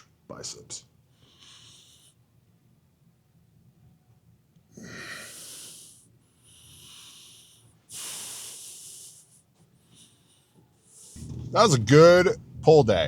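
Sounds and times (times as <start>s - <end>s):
man breathing heavily: 1.1s - 2.4s, 4.8s - 11.2s.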